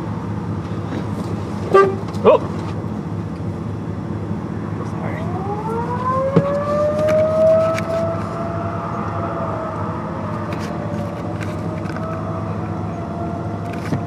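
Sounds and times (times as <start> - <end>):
low engine hum: 0.0 - 14.0
tornado siren wailing: 5.0 - 14.0.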